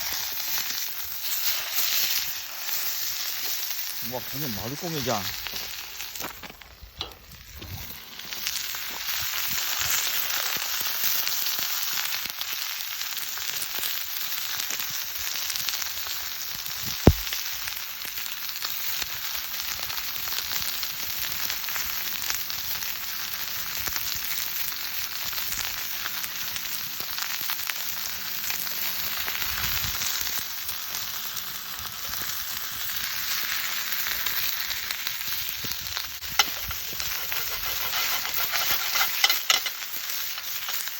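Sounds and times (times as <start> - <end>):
chicken sizzling in frying pan: 0.0 - 40.9.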